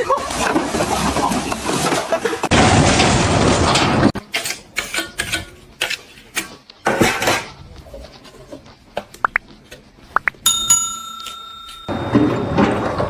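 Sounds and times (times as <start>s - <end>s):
sharp clacks: 10.5s - 12.7s.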